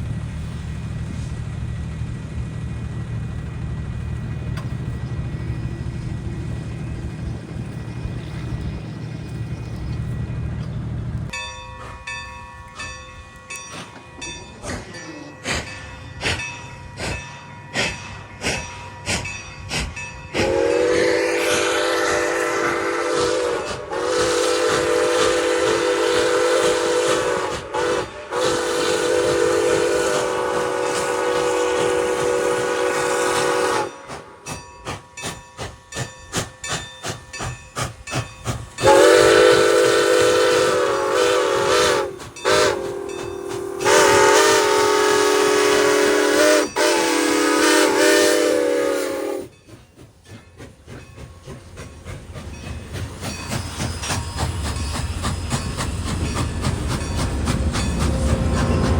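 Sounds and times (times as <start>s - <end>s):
train wheels clicking over rail joints: 0.0s - 58.9s
locomotive air horn blasts: 20.4s - 34.0s, 38.8s - 49.5s.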